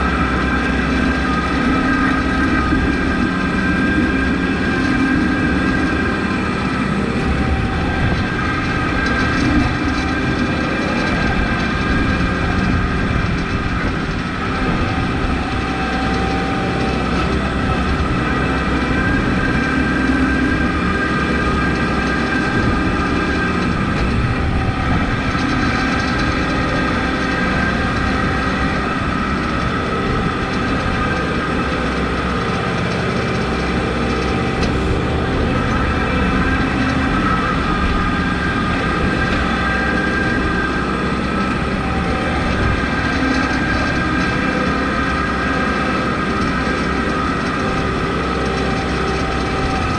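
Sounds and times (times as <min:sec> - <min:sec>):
tractor diesel engine running: 0:00.0 - 0:49.9
whining tones: 0:00.0 - 0:49.9.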